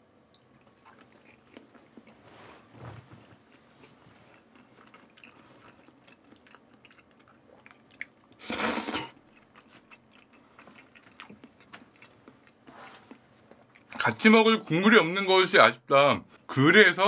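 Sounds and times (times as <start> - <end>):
wet chewing sounds: 0.3 - 2.2, 3.2 - 8.4, 9.1 - 14.0.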